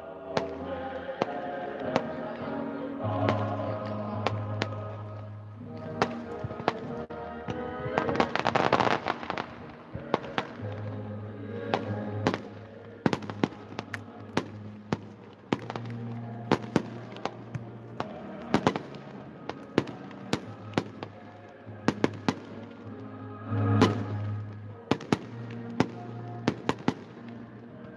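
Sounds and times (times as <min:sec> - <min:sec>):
music with long low notes: 0:00.0 - 0:27.9
fireworks bangs and cracks: 0:11.7 - 0:21.3.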